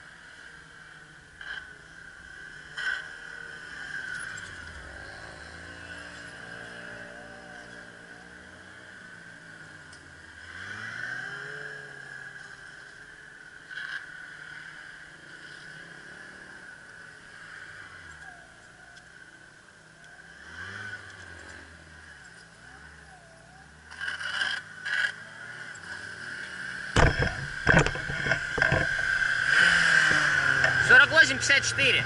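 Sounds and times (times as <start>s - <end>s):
motorcycle engine revving: 0.0s - 18.3s, 20.1s - 32.0s.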